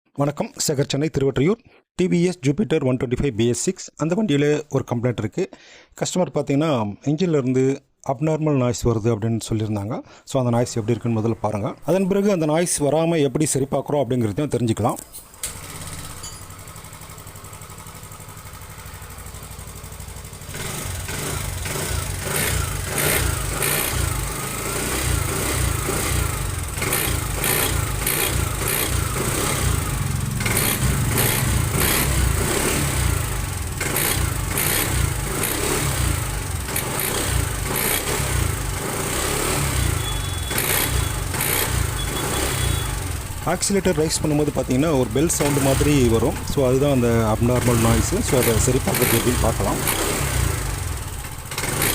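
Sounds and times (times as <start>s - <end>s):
scooter engine revving: 15.1s - 51.9s
bell-like ringing noise: 16.2s - 16.6s.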